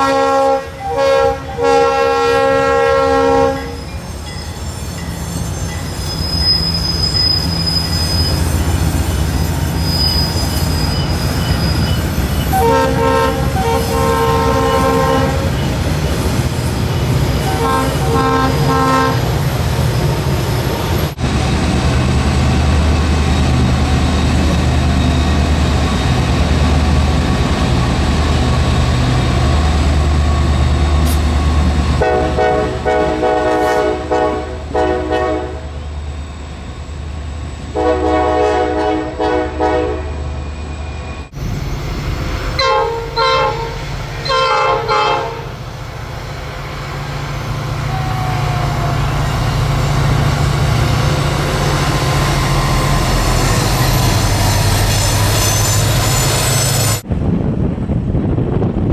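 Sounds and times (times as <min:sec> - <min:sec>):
train air horn blasts: 0:00.0 - 0:04.0, 0:12.5 - 0:15.9, 0:17.3 - 0:19.4, 0:32.0 - 0:35.8, 0:37.7 - 0:40.2, 0:42.5 - 0:45.6
locomotive low rumble: 0:07.1 - 0:58.9.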